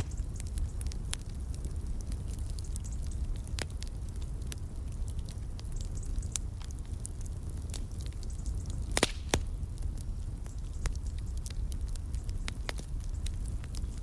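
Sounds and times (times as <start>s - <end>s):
fire crackling: 0.0s - 14.0s
loud pops of fire: 0.0s - 14.0s
low fire rumble: 0.0s - 14.0s.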